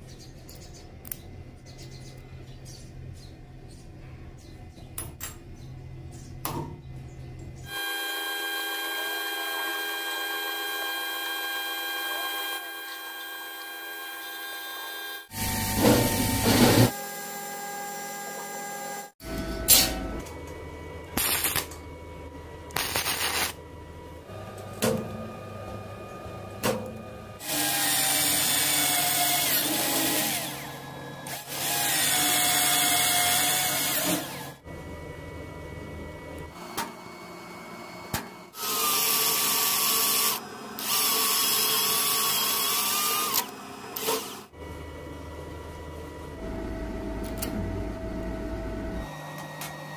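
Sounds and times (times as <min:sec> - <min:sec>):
electric power tool motor whine: 0:07.7 - 0:19.6, 0:24.2 - 0:34.7, 0:36.5 - 0:44.8.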